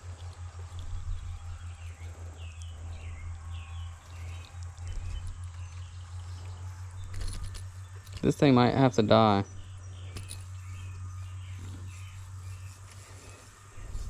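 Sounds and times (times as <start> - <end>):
low rumble: 0.0 - 8.2
songbird chirping: 0.0 - 14.0.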